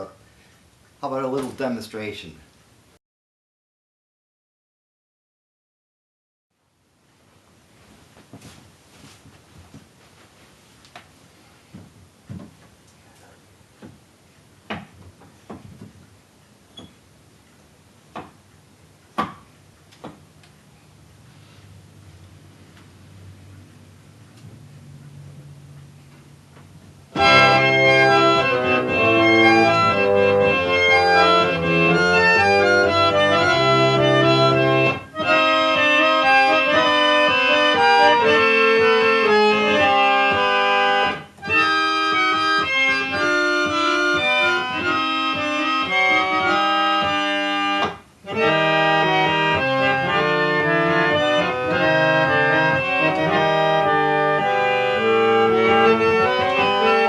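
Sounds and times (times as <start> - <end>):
reed organ playing chords: 21.8 - 57.0.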